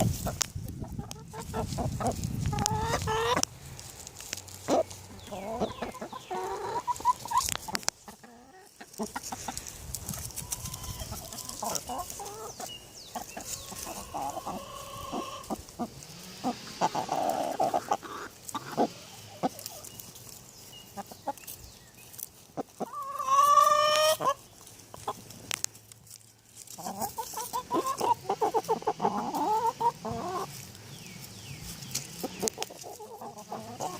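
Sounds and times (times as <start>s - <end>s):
hens clucking: 0.0s - 33.9s.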